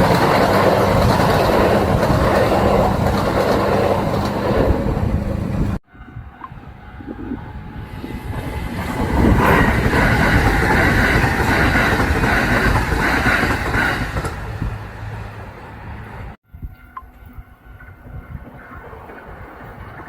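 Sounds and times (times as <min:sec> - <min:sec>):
wheels clattering over rail joints: 0:00.0 - 0:05.8
electric train passing: 0:00.0 - 0:20.0.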